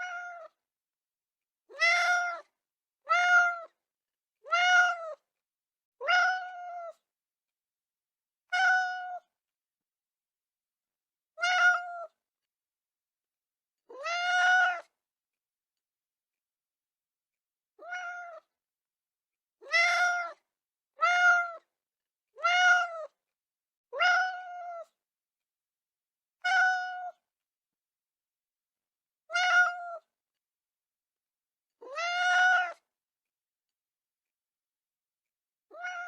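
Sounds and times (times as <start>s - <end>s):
cat meowing: 0.0s - 0.6s, 1.7s - 3.8s, 4.4s - 5.2s, 6.0s - 7.0s, 8.5s - 9.3s, 11.4s - 12.2s, 13.9s - 14.9s, 17.8s - 18.5s, 19.6s - 20.4s, 21.0s - 21.7s, 22.4s - 23.2s, 23.9s - 24.9s, 26.4s - 27.2s, 29.3s - 30.1s, 31.8s - 32.8s, 35.7s - 36.0s.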